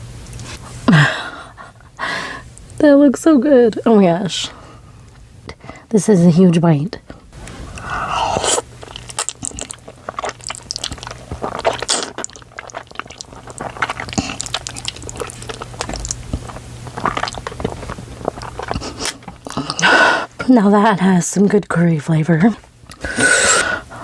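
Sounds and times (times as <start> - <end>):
wet chewing: 7.4 - 20.4
noodle slurping: 7.5 - 20.4, 22.9 - 23.8.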